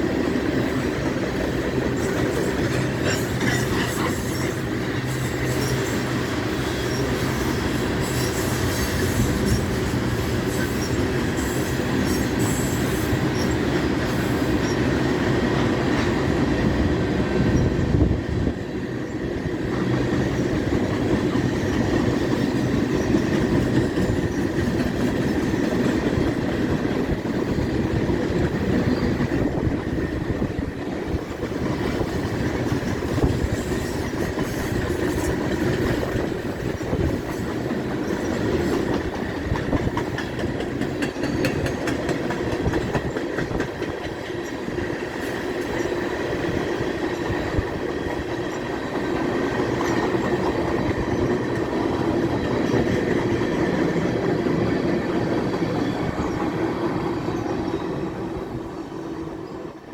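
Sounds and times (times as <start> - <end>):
freight train rumbling on rails: 0.0 - 59.9
steel wheels clicking: 31.4 - 58.0.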